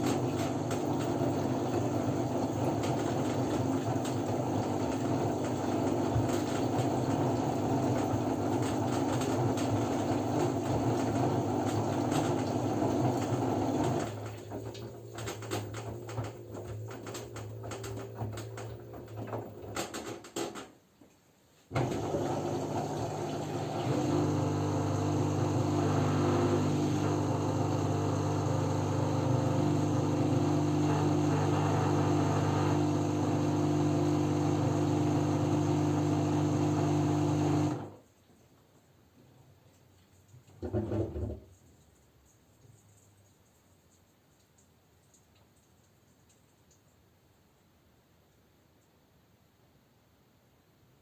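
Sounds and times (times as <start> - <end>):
washing machine hum: 0.0 - 20.8, 21.6 - 46.8
clicks and sloshing from drum: 11.6 - 20.8, 39.2 - 43.2.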